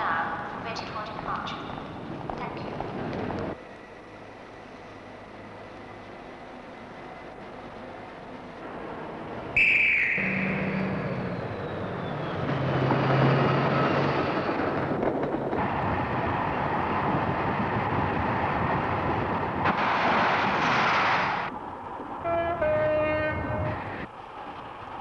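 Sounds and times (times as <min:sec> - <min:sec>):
train setting off: 0:00.4 - 0:25.0
short shrill whistle: 0:09.6 - 0:12.4.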